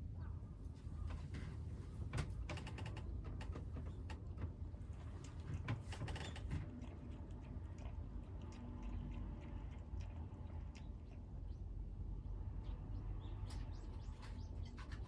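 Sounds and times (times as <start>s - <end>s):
kittens crunching food: 3.7s - 12.5s.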